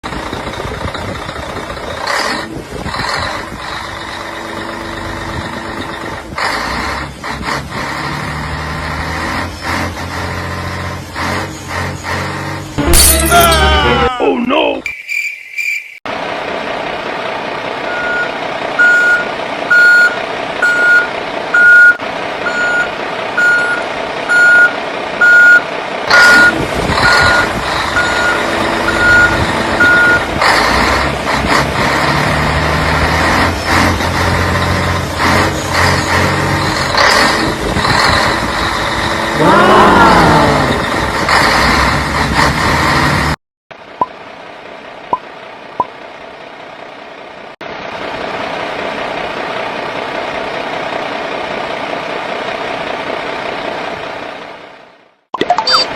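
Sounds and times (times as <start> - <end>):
rising wail: 12.8 - 14.5, 39.4 - 41.0
reversing alarm beeping: 17.9 - 25.6, 26.2 - 30.2.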